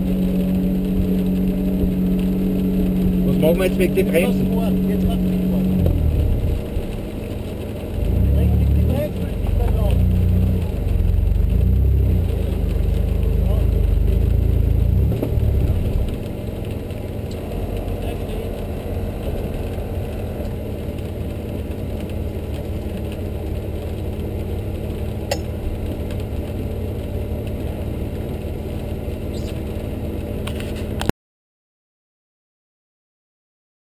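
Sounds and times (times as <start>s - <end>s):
car engine idling: 0.0s - 31.1s
sharp click: 25.3s - 25.5s.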